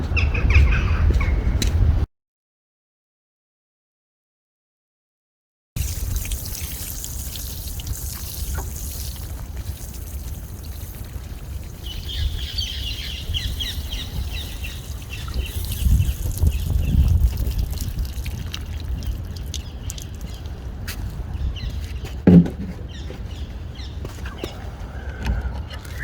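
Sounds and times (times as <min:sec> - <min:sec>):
birds twittering: 0:00.1 - 0:01.6, 0:05.9 - 0:17.2, 0:19.0 - 0:20.6, 0:21.2 - 0:26.0
trickling rushing water: 0:05.8 - 0:21.2.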